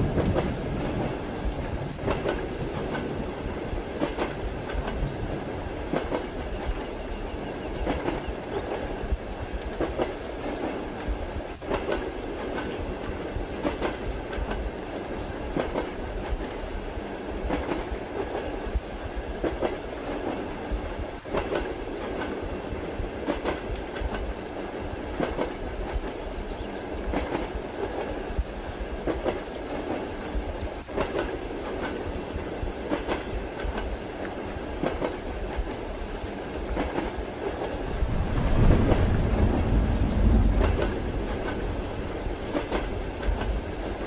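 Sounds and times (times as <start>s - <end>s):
rain patter: 0.0s - 44.0s
train wheels clacking: 0.1s - 16.6s, 17.4s - 18.6s, 19.4s - 26.2s, 27.0s - 28.2s, 28.9s - 44.0s
deep rumble: 37.8s - 43.6s.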